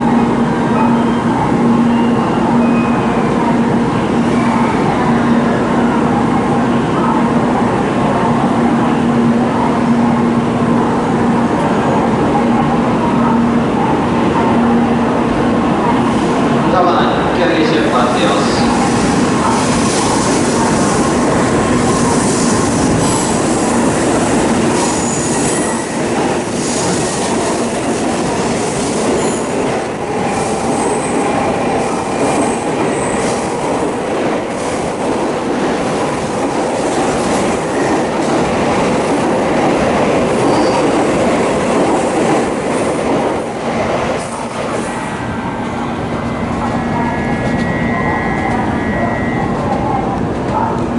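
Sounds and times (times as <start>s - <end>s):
train wheel squeals: 24.8s - 26.0s, 40.4s - 41.0s.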